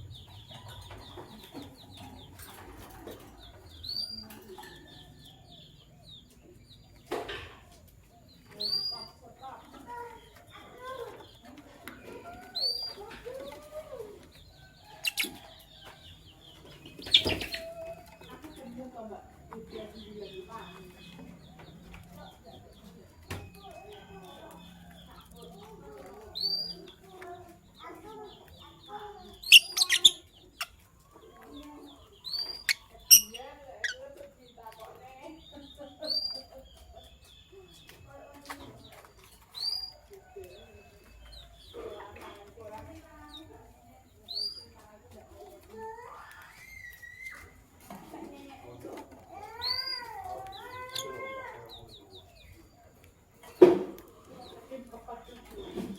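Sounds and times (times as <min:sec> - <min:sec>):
lovebirds chirping: 0:00.0 - 0:55.9.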